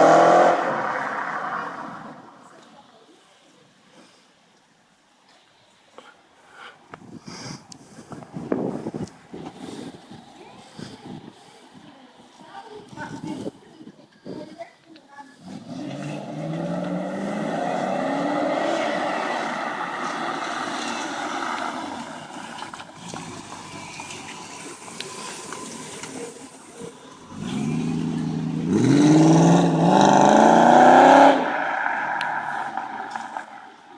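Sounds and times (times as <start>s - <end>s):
car engine revving: 0.0s - 2.4s, 15.4s - 33.6s.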